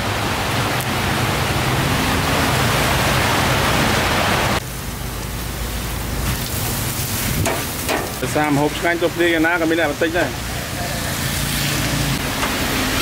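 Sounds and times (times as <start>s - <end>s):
food frying in hot oil: 4.6s - 13.0s.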